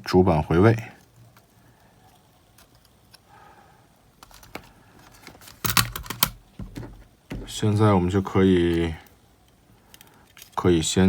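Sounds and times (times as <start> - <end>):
tools clattering: 4.2 - 7.6.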